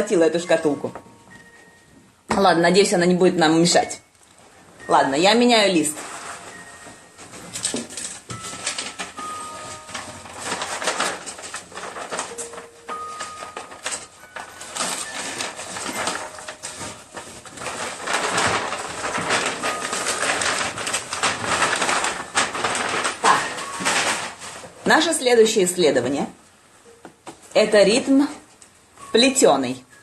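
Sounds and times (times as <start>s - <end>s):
paper rustling: 5.5s - 25.6s
music box notes: 6.4s - 17.2s.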